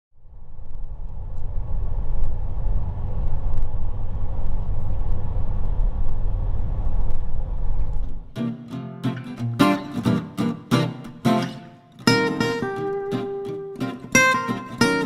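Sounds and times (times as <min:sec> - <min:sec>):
bus engine and road rumble: 0:00.3 - 0:08.4.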